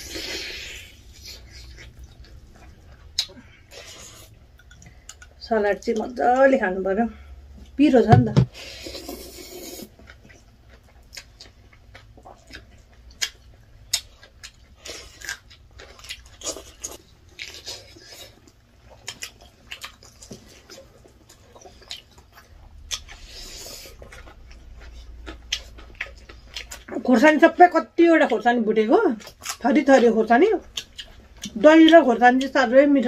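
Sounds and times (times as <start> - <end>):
people chewing and biting food: 0.0 - 5.4, 8.5 - 27.1, 30.7 - 32.0.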